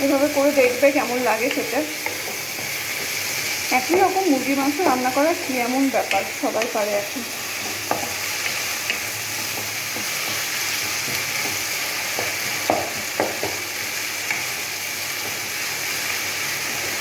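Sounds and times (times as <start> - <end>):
onions sizzling in hot oil: 0.0 - 17.0
spatula knocking against pan: 7.6 - 13.6.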